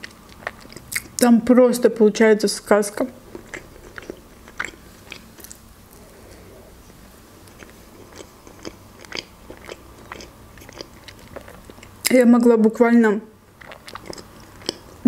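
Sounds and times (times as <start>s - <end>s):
person chewing bread: 0.0s - 1.2s, 3.2s - 12.1s, 13.4s - 15.0s.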